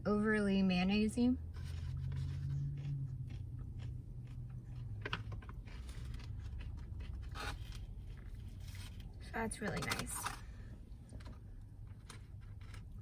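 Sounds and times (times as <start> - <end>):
low steady hum: 0.0 - 13.0
person chewing: 1.6 - 8.8.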